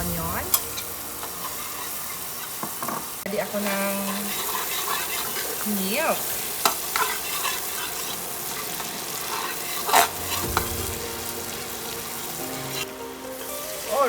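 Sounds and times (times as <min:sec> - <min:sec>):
onion sizzling in a pan: 0:00.0 - 0:14.0
utensil clicking against pan: 0:06.6 - 0:08.2.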